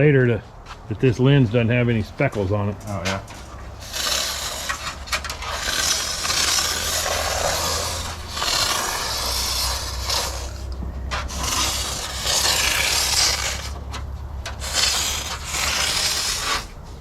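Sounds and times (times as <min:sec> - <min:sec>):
spray paint can hissing: 0:03.8 - 0:10.7, 0:11.3 - 0:13.8, 0:14.6 - 0:16.7.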